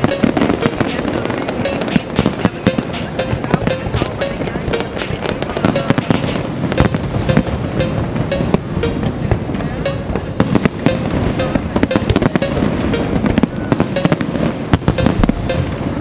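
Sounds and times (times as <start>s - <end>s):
music with regular beat: 0.0s - 15.9s
fireworks bangs and crackles: 5.0s - 16.0s.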